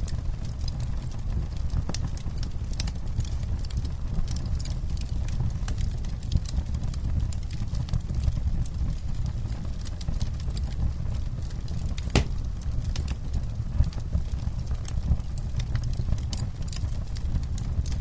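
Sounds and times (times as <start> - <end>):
campfire crackling: 0.0 - 18.0
loud fire pop: 12.0 - 12.5.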